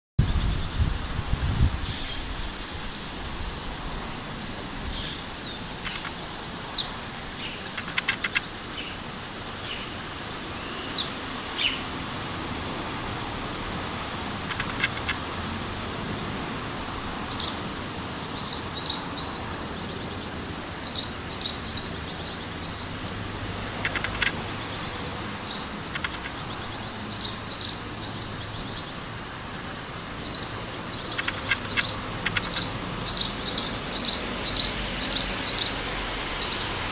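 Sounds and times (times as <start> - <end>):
steady background noise: 0.2 - 36.9
sparrow chirping: 4.9 - 9.0, 14.4 - 15.2, 17.3 - 23.0, 23.7 - 29.0, 29.6 - 36.8.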